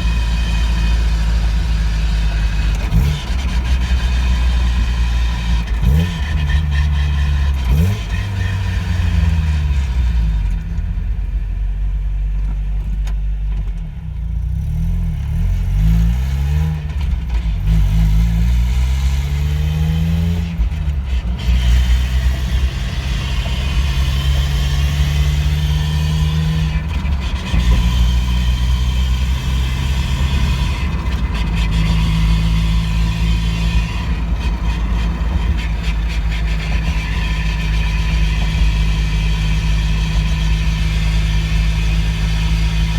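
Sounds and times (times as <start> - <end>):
car engine revving: 0.0 - 10.6, 14.5 - 42.9.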